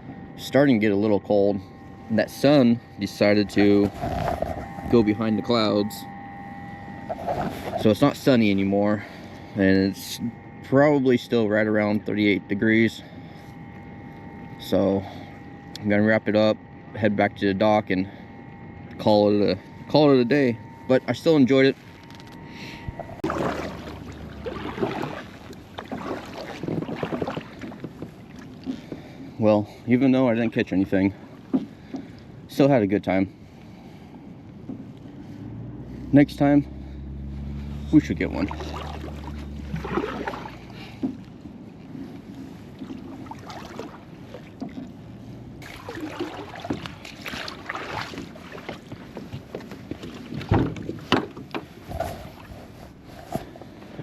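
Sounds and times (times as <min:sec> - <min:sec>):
wind rumbling on microphone: 0:03.5 - 0:05.5
paddle strokes splashing water: 0:06.9 - 0:08.0, 0:22.9 - 0:29.4, 0:37.3 - 0:54.0.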